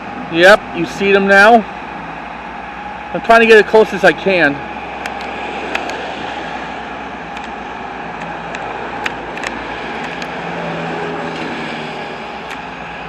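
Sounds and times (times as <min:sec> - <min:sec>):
vehicle engine and traffic: 0:00.0 - 0:13.0
sharp clicks: 0:05.0 - 0:06.0, 0:07.3 - 0:07.6, 0:08.2 - 0:10.4.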